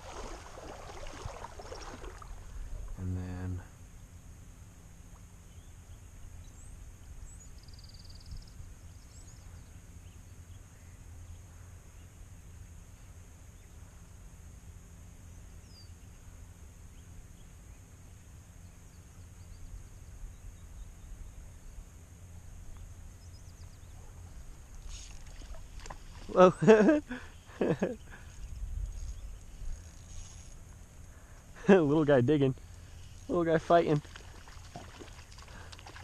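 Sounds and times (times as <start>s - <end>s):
low river rumble: 0.0s - 5.4s, 21.1s - 36.0s
faint bird chirps: 5.4s - 12.2s.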